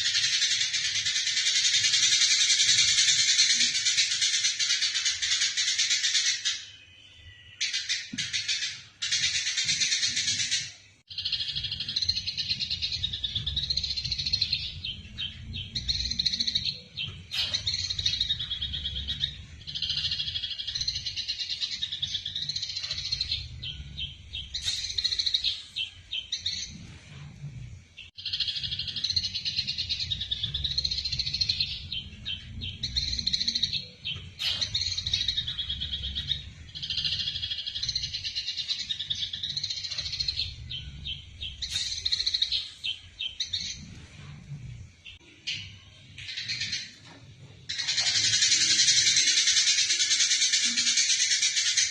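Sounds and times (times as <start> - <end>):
sparrows chirping: 0.0 - 51.9.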